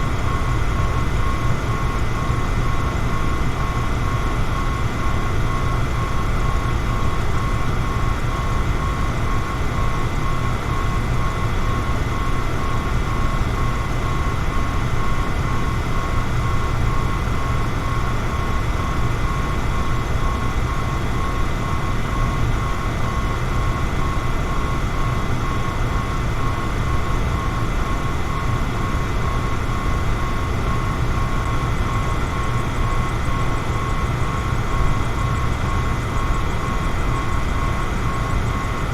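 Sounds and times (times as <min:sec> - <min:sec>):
electric fan running: 0:00.0 - 0:38.9.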